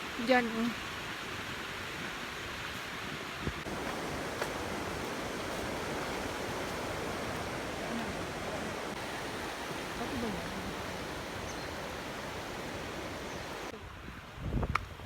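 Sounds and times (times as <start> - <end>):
steady rushing noise: 3.6 - 13.7.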